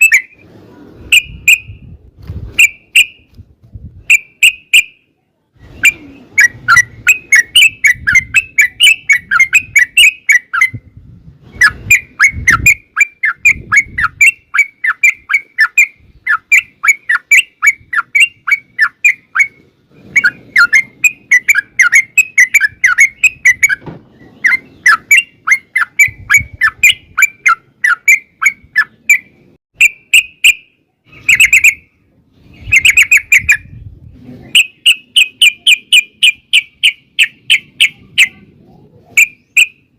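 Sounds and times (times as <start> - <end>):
bird singing chattering notes: 5.8 - 10.8, 11.6 - 32.0, 32.6 - 33.7, 34.5 - 38.5, 39.1 - 39.9.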